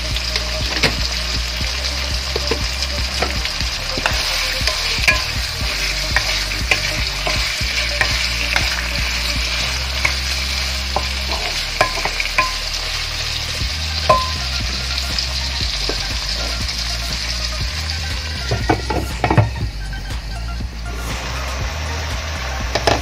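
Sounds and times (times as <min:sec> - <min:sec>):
food sizzling in oil: 0:00.0 - 0:23.0
wooden spatula scraping a wok: 0:01.9 - 0:19.5.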